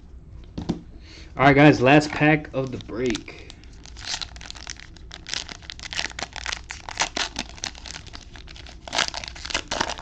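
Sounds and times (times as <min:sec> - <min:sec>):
card pack wrapper tearing and crinkling: 0:02.6 - 0:10.0.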